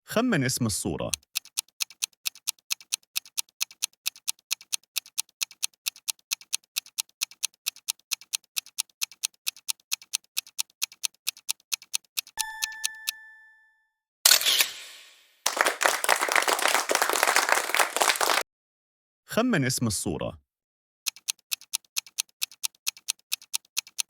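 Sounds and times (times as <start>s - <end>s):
fast clock ticking: 1.1s - 13.2s, 21.1s - 24.0s
short ringing ding: 12.4s - 13.8s.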